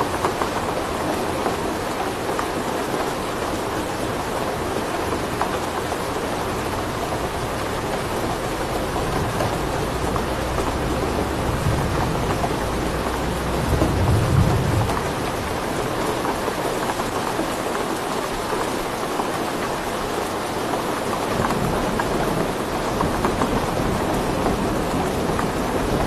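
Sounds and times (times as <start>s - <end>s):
heavy rain: 0.0s - 26.0s
low rolling thunder: 6.1s - 16.3s.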